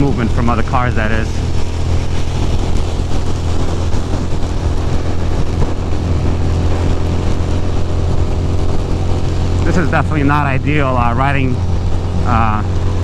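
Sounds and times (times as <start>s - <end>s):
motorcycle engine running steadily: 0.0s - 13.0s
wind noise on microphone: 0.0s - 13.0s.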